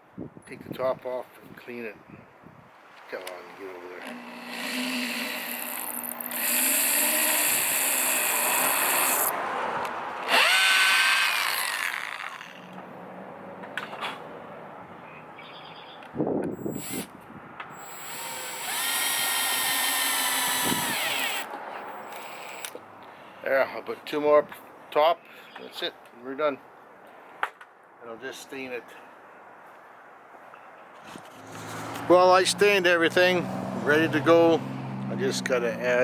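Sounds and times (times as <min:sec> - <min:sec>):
power drill driving screws into wood: 0:04.0 - 0:09.3, 0:10.2 - 0:12.6, 0:16.5 - 0:17.1, 0:17.7 - 0:22.8.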